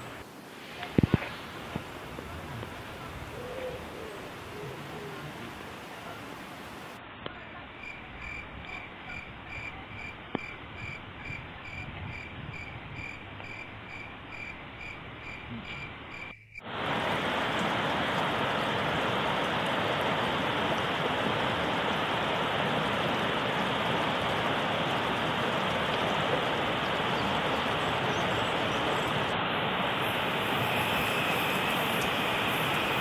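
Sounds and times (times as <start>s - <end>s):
river rushing over rapids: 0.0s - 7.1s, 16.6s - 33.0s
faint hiss: 0.0s - 7.6s, 15.5s - 33.0s.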